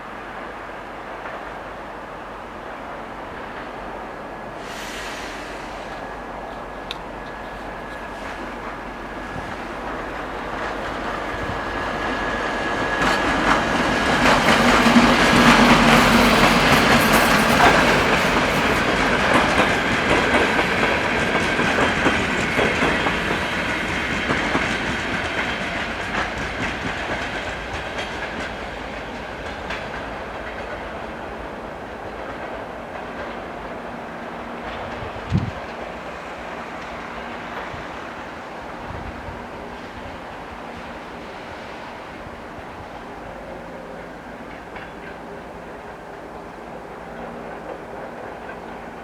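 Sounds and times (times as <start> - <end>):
diesel locomotive engine hum: 0.1 - 49.0
train wheels clattering over rail joints: 6.5 - 31.2.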